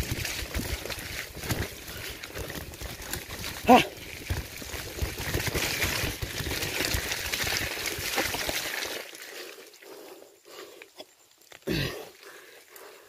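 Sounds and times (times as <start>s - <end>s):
tyres splashing through mud: 0.0s - 9.7s.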